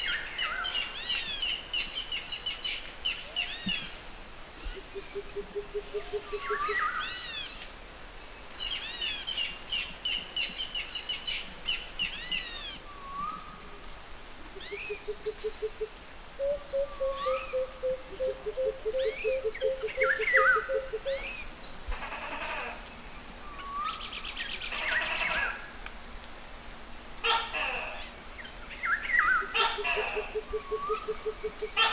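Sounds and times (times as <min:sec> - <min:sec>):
birds whistled chirps: 0:16.4 - 0:21.5
harsh rasping bird calls: 0:27.2 - 0:31.9.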